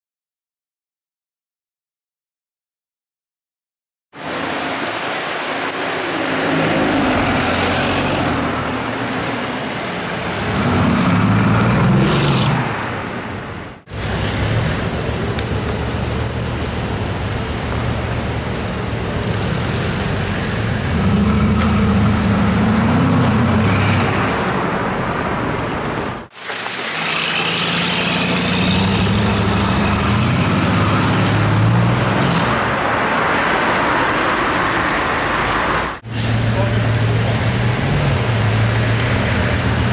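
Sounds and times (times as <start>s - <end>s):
street traffic noise: 4.1s - 39.9s
car engine accelerating hard: 19.3s - 24.2s.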